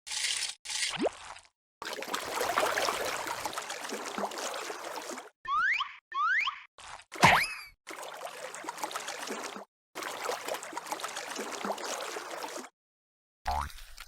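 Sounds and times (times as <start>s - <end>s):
watery bubbling and splashing: 0.8s - 5.4s, 6.8s - 12.7s
cartoon boing sound effect: 7.2s - 7.6s.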